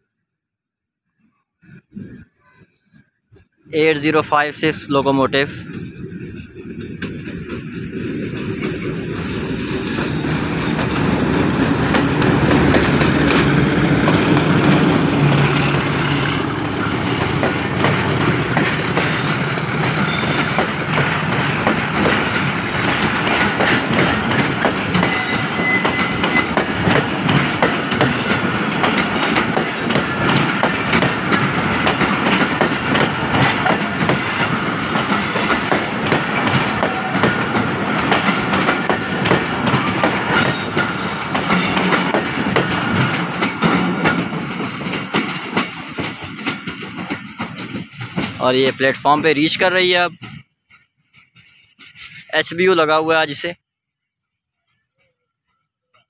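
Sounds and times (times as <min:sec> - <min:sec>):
train wheels clattering on rails: 0:05.6 - 0:52.4
diesel locomotive engine hum: 0:05.6 - 0:52.5.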